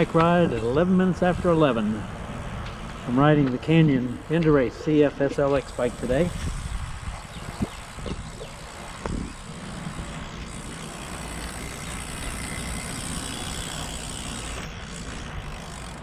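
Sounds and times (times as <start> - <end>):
vehicle tyre hiss passing: 0.0 - 7.1
wind rumbling on microphone: 6.0 - 13.8.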